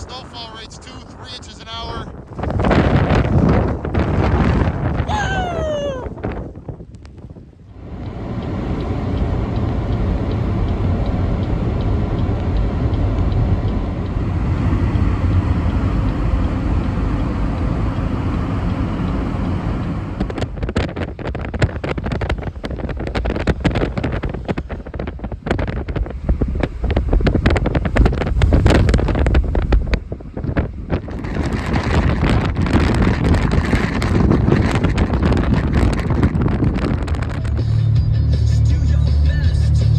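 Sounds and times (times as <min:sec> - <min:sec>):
blizzard wind on microphone: 0:00.0 - 0:08.4, 0:19.3 - 0:37.6.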